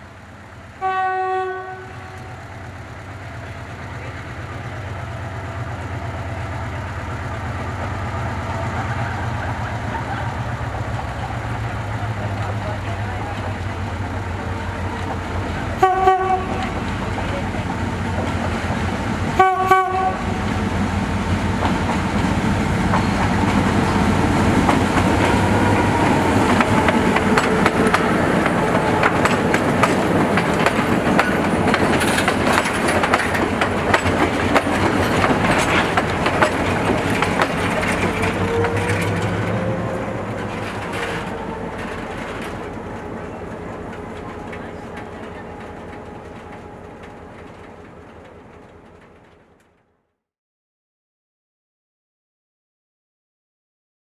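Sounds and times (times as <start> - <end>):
train horn blasts: 0.8 - 2.4, 15.8 - 16.8, 19.4 - 20.5
train wheels clacking over rail joints: 3.2 - 19.5, 20.4 - 49.6.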